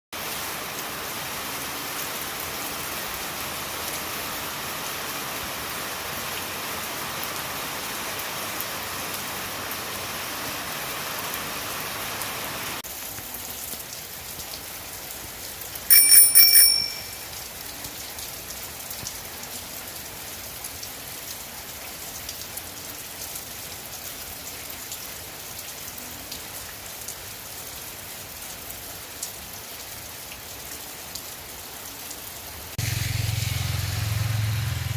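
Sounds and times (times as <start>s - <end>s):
rain falling: 0.2s - 34.9s
bell-like ringing: 15.9s - 17.5s.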